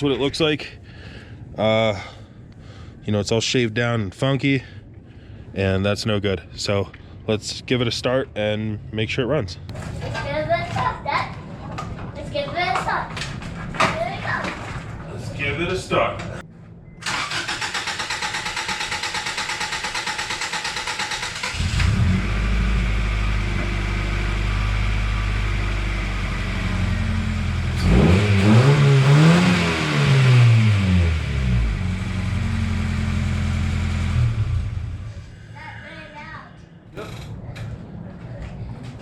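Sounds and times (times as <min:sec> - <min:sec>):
starter cranking engine: 0:17.0 - 0:22.2, 0:27.7 - 0:30.8
car engine idling and revving: 0:17.1 - 0:35.4.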